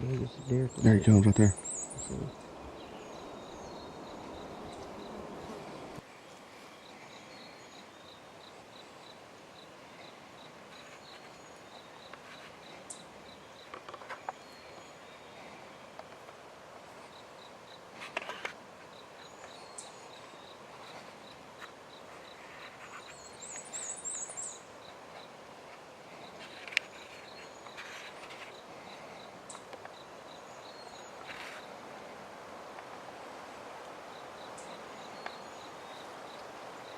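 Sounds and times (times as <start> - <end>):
steady high chirping: 0.1 - 6.0
faint clicks and rustles: 9.9 - 17.2, 17.9 - 30.0, 31.0 - 33.1.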